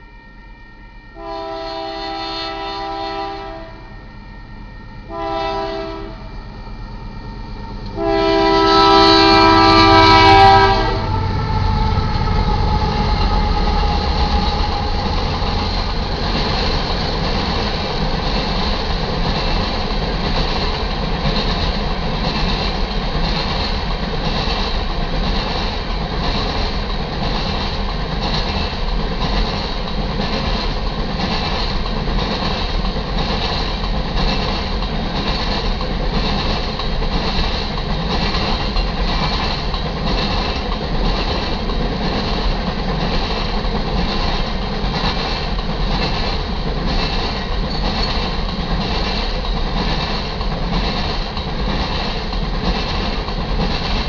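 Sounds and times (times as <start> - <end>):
train rumbling past: 0.0 - 54.0
locomotive air horn blasts: 1.1 - 4.0, 5.0 - 6.5, 7.9 - 12.1
wheels clattering on rails: 12.2 - 54.0.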